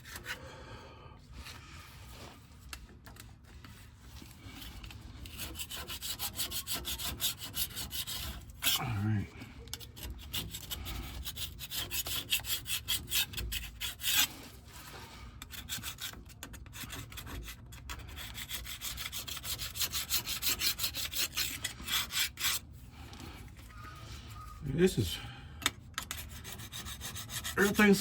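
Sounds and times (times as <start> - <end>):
gasket scraper scraping metal: 5.2 - 9.0, 9.7 - 14.5, 15.4 - 22.7, 25.6 - 28.0.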